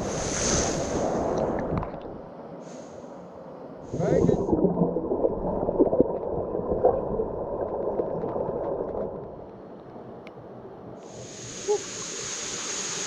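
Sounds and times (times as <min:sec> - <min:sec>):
pool water splashing and gurgling: 0:03.9 - 0:09.4.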